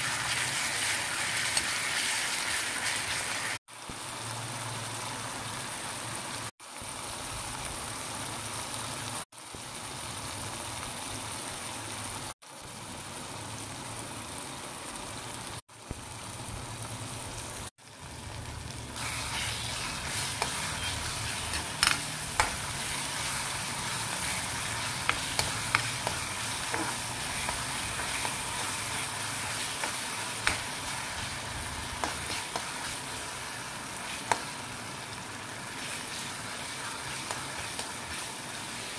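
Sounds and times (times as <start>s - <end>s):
onions and tomatoes sizzling: 0.0s - 38.9s
spatula scraping a pan: 19.0s - 33.3s, 35.7s - 38.9s.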